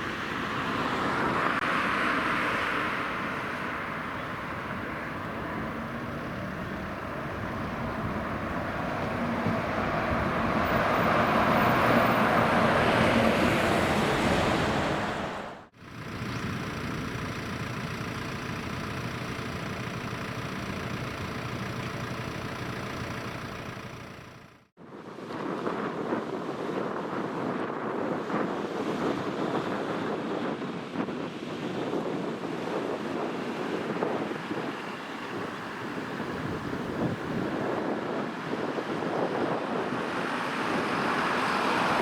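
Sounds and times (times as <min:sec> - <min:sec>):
vehicle passing by: 0:00.0 - 0:17.6, 0:39.5 - 0:42.0
engine and road noise: 0:00.0 - 0:42.0.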